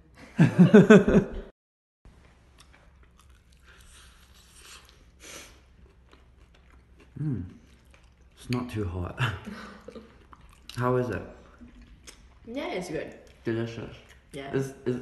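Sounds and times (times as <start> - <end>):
chewing crunchy food: 2.5 - 9.0, 9.8 - 12.5, 13.1 - 14.4.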